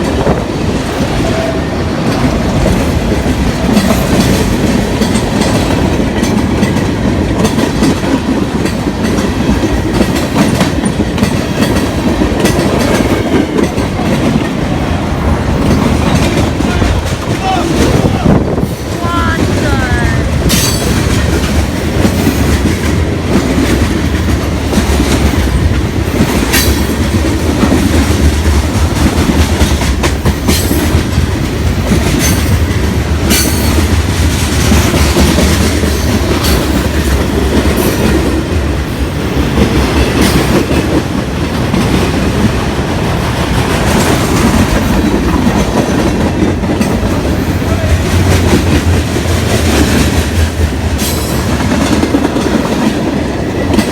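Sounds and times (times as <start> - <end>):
train wheels rumbling on rails: 0.0 - 53.9
clacks over rail joints: 2.0 - 14.7.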